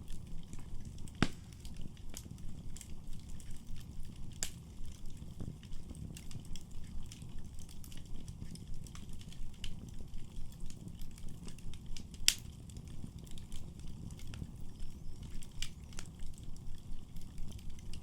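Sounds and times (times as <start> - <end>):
fire crackling: 0.0 - 18.0
fire flames rumbling: 0.0 - 18.0
loud sharp pop of fire: 1.1 - 1.8.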